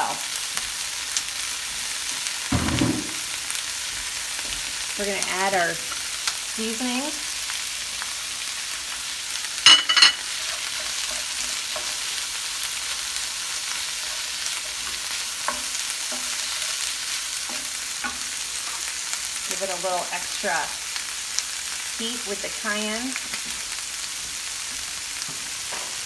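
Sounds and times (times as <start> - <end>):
onions and beans sizzling: 0.0 - 26.0
light knocks against pan: 2.5 - 3.2.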